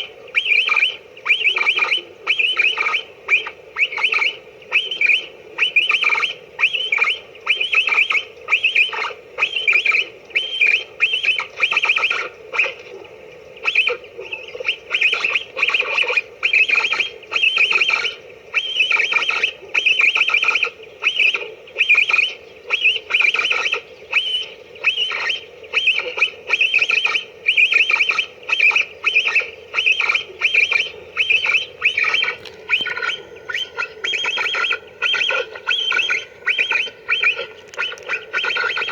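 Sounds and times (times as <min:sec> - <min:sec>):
capybara squeaky chirps: 0:14.6 - 0:38.9.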